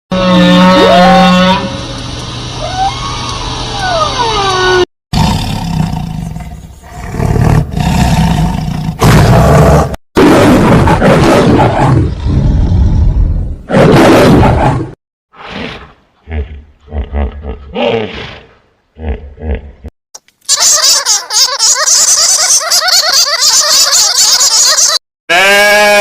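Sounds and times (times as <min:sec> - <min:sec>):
large animal roaring: 0:04.2 - 0:19.9.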